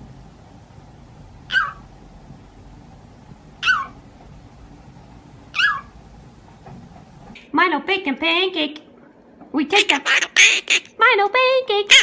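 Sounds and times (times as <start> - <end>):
parrot calls: 1.5 - 1.9, 3.6 - 4.0, 5.5 - 6.0, 9.8 - 11.0.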